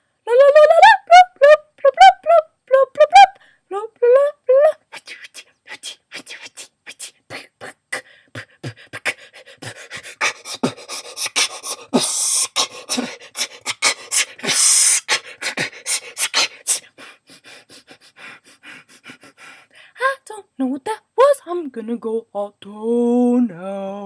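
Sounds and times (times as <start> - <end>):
person beatboxing: 4.9 - 16.9
hissing breaths: 7.4 - 20.0.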